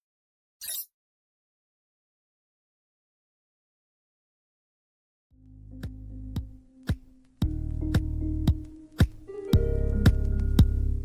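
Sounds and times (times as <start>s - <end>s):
background music with low bass: 5.4s - 11.0s.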